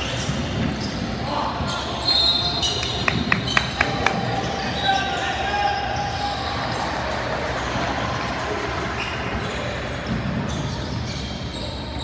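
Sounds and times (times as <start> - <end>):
basketball bouncing on court: 2.8 - 4.3.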